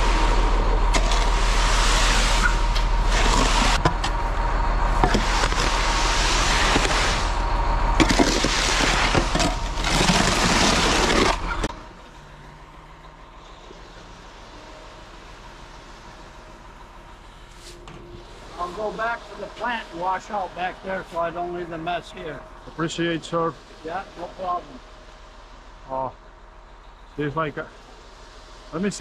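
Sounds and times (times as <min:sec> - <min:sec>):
wet concrete scraping down chute: 0:00.0 - 0:03.9, 0:05.0 - 0:11.7
truck engine hum: 0:00.0 - 0:29.0.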